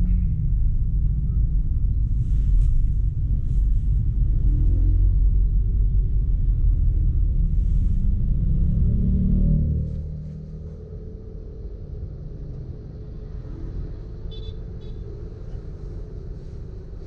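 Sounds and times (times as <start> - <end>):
road and wind noise rumble: 0.0 - 17.0.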